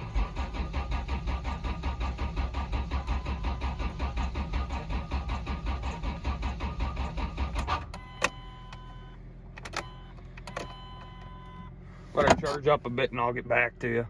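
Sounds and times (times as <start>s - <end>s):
engine cranking on starter: 0.0s - 8.4s.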